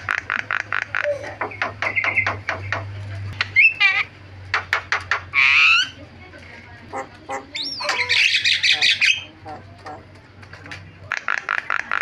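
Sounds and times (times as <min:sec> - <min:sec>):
bird singing varied song: 0:07.3 - 0:10.0.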